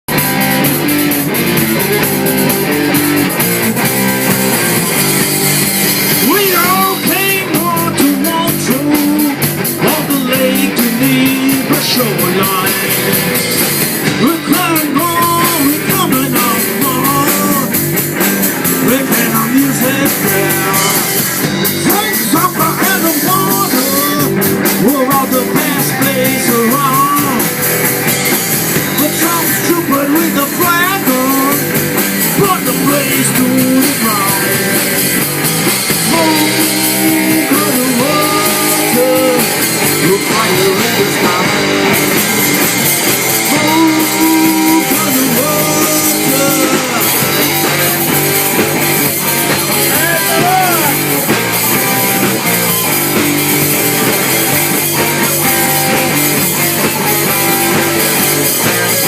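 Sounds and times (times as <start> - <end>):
drum kit: 0.0 - 59.0
electric guitar: 0.0 - 59.0
person singing: 6.1 - 13.2, 14.0 - 17.8, 18.6 - 27.7, 28.9 - 35.1, 35.9 - 42.5, 43.3 - 53.4, 54.0 - 59.0.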